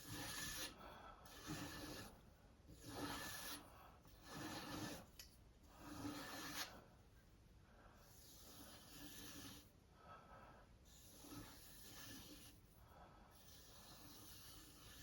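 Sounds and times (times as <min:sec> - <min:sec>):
sharpening stone rasping on knife: 0:00.0 - 0:00.7, 0:01.3 - 0:06.8, 0:08.1 - 0:09.7, 0:10.9 - 0:12.6, 0:13.4 - 0:15.0.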